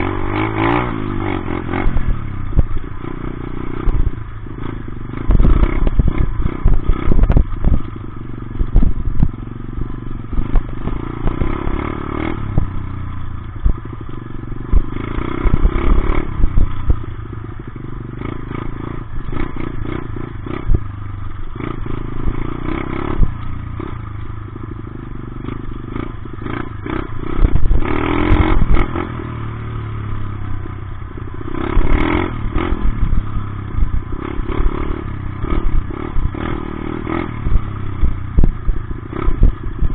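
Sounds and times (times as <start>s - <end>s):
dirt bike engine revving: 0.0s - 39.9s
wind buffeting on microphone: 5.2s - 12.8s.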